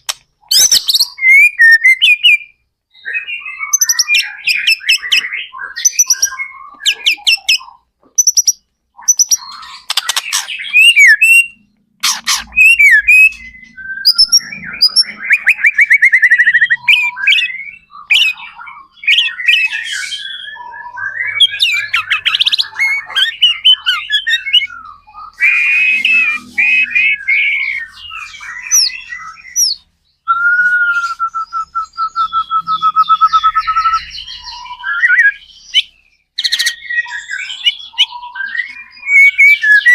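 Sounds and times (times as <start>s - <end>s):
rapid bird trill: 0.0s - 29.8s
songbird singing: 0.0s - 39.9s.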